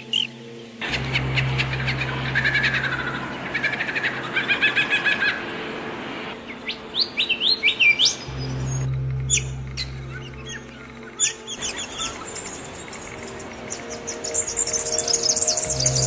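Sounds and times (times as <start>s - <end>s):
songbirds chirping and singing: 0.0s - 5.5s, 6.3s - 16.0s
low steady hum: 8.2s - 16.0s.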